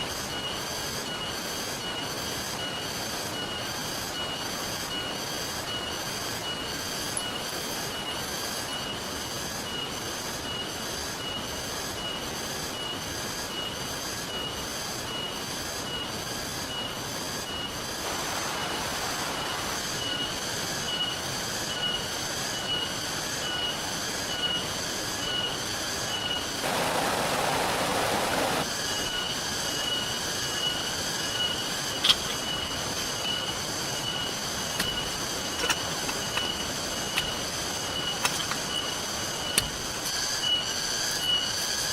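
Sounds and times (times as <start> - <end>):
stream hiss: 0.0 - 41.9
steady rain: 17.8 - 40.2.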